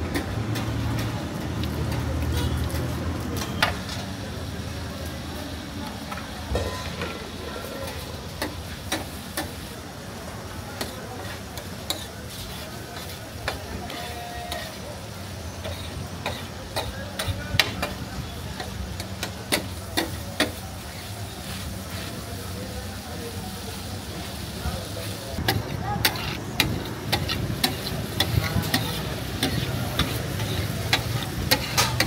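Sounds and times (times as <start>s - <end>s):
liver sizzling on a griddle: 0.0s - 32.0s
metal spatula scraping griddle: 10.8s - 14.9s, 15.5s - 17.4s, 25.4s - 32.0s.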